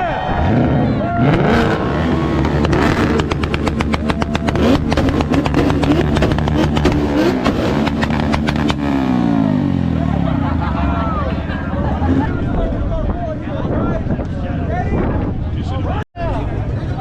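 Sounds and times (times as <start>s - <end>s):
engine revving hard: 0.3s - 11.2s
exhaust pops crackling: 1.3s - 9.2s.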